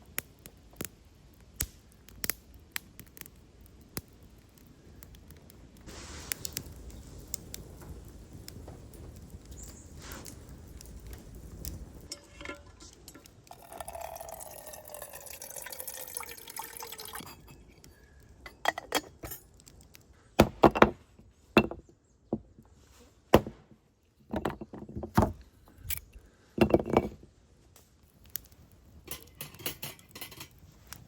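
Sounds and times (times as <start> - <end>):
cookware clinking and knocking: 12.1 - 14.8, 18.5 - 19.4, 29.1 - 30.5
liquid pouring into container: 12.2 - 17.6.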